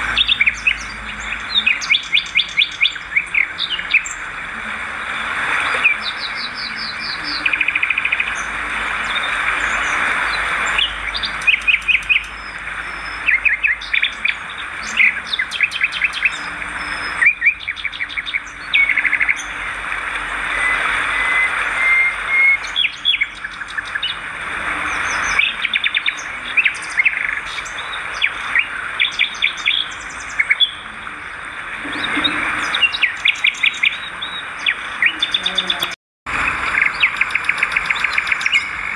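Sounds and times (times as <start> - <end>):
swiftlets twittering: 0.0 - 4.1.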